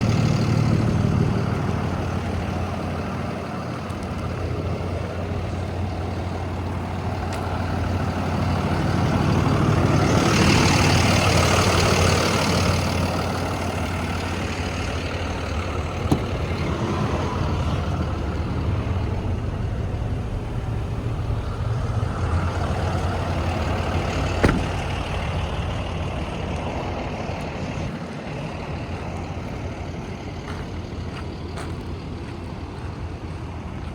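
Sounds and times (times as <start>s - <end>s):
diesel truck engine idling: 0.0s - 33.9s
sharp knocks: 24.3s - 25.1s.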